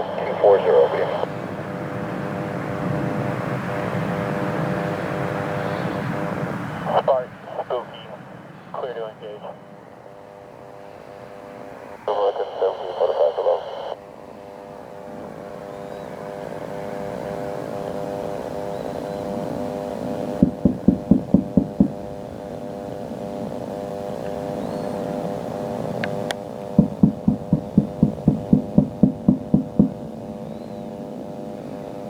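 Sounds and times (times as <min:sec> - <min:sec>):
aircraft engines droning: 0:00.0 - 0:32.0
rapid heavy pulses: 0:20.3 - 0:22.3, 0:26.8 - 0:30.4.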